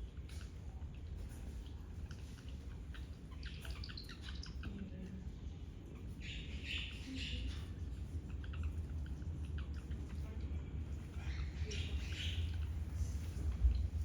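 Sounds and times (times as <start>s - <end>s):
small birds chirping: 0.0s - 14.0s
steady low rumble: 5.2s - 14.0s.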